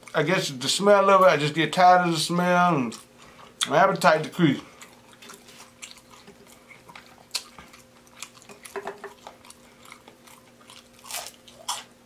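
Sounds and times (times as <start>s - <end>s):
person chewing fried food: 2.8s - 12.0s.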